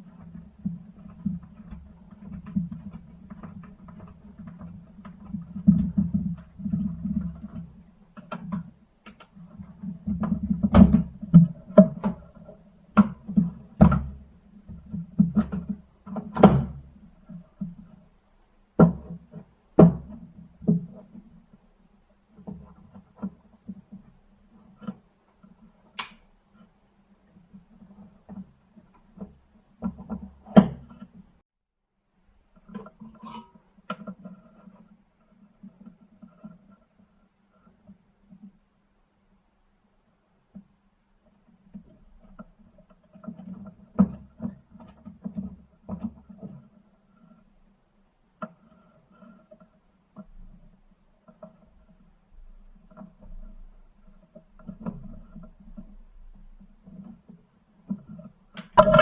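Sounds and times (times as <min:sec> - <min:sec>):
tools knocking and clicking: 0:58.6 - 0:59.0.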